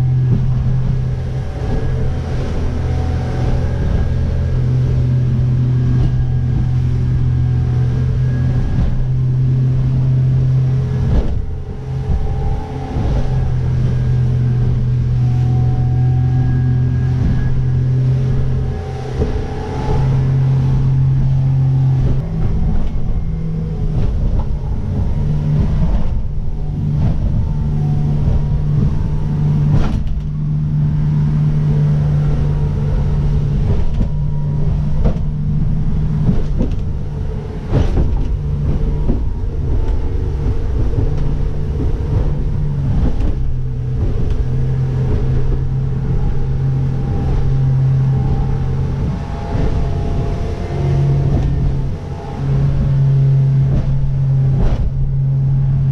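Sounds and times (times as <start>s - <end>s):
hull knocking: 0.0s - 55.9s
motorboat engine humming: 0.0s - 55.9s
wind and water rumble: 0.0s - 55.9s.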